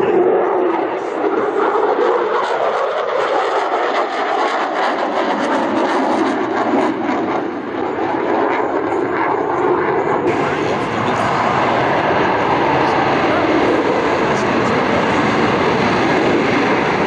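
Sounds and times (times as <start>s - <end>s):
aircraft engines roaring: 10.3s - 17.0s.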